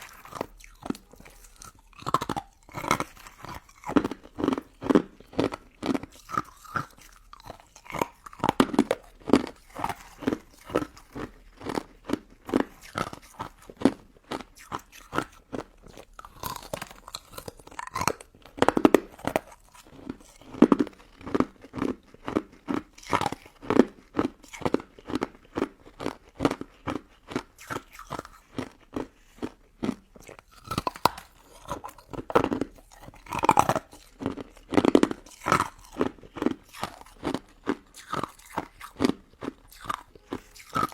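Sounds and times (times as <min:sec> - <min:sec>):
crunching and chewing ice: 0:00.0 - 0:40.9.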